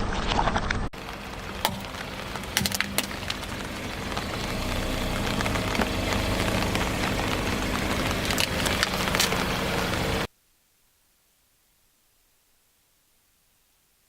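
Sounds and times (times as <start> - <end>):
sharp cracks under tyre: 0.3 - 10.3
car engine running: 1.0 - 10.3.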